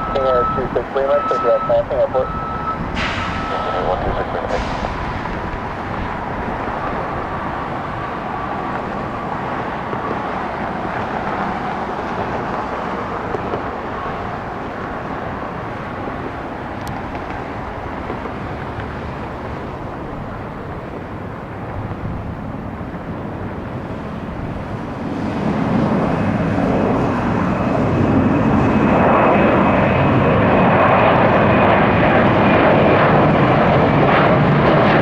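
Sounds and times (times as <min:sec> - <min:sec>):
faint high whine: 0:00.0 - 0:04.5
jet engines rushing: 0:00.0 - 0:35.0.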